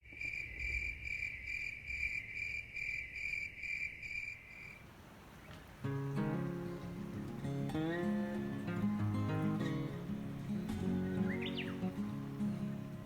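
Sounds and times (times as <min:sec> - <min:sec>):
insect-like chirping: 0:00.1 - 0:04.8
acoustic guitar music: 0:05.8 - 0:13.0.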